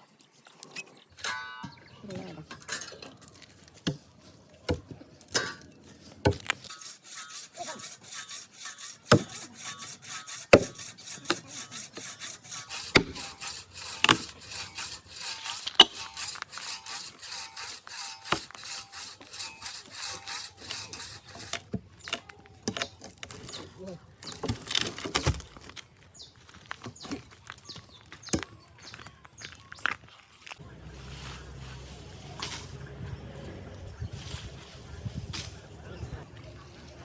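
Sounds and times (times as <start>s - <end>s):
hand saw cutting wood: 6.3s - 22.2s.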